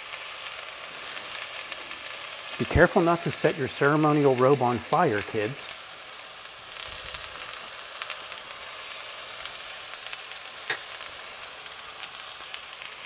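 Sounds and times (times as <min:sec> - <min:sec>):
tomato slices sizzling in a pan: 0:00.0 - 0:13.0.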